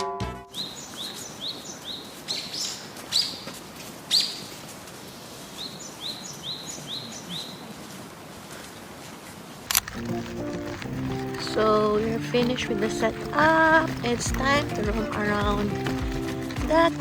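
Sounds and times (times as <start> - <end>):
songbird chirping: 0.5 - 3.5, 4.1 - 4.6, 5.5 - 7.7, 9.7 - 17.0.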